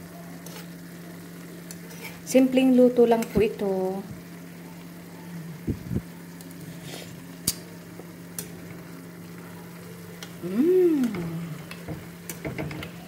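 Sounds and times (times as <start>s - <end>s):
vegetables sizzling in a frying pan: 0.0s - 13.0s
person humming mmm: 5.2s - 6.0s, 10.4s - 11.8s.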